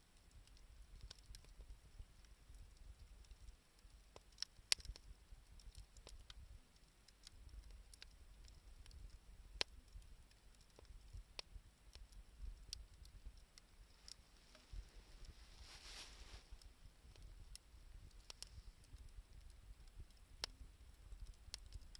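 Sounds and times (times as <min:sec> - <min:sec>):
wood fire crackling: 0:00.0 - 0:21.9
fire popping: 0:00.1 - 0:21.9.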